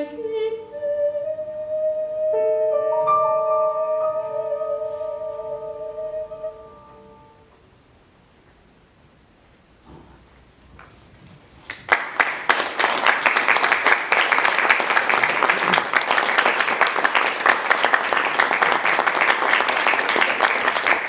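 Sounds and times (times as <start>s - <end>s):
audience applauding: 11.6s - 21.0s.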